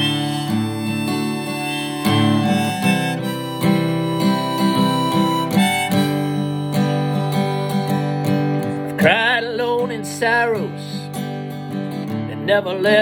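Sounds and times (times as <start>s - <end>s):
harmonica playing melody: 0.0s - 9.2s
acoustic guitar strumming: 0.0s - 13.0s.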